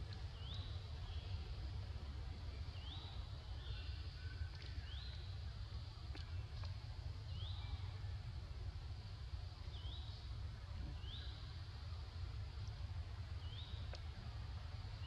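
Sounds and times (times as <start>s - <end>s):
steady low rumble: 0.0s - 15.0s
faint clicks: 4.0s - 5.3s, 6.0s - 6.9s, 12.6s - 12.8s, 13.7s - 14.3s.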